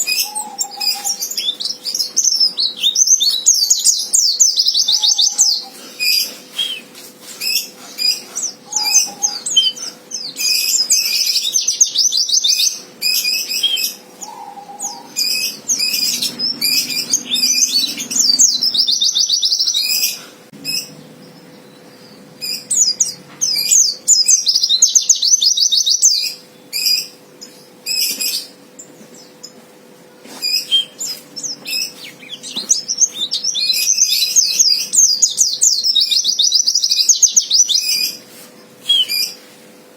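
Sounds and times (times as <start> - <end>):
bird chattering song: 0.0 - 29.6, 30.3 - 39.4.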